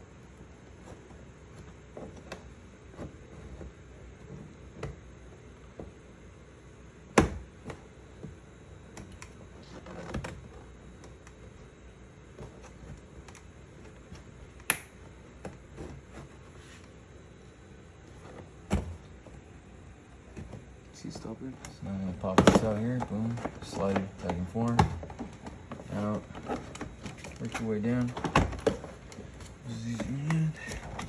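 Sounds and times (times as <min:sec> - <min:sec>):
sharp plastic snaps: 0:14.6 - 0:15.0.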